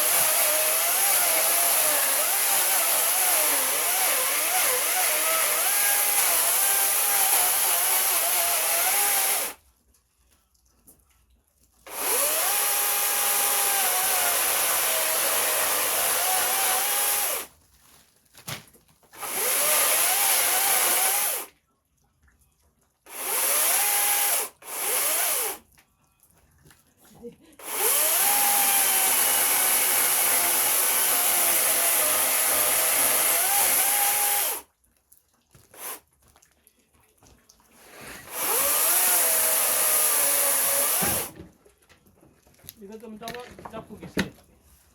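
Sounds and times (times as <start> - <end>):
electric power tool whining: 0.0 - 9.6, 11.9 - 17.5, 19.2 - 21.5, 23.1 - 25.6, 27.6 - 34.6, 38.2 - 41.4.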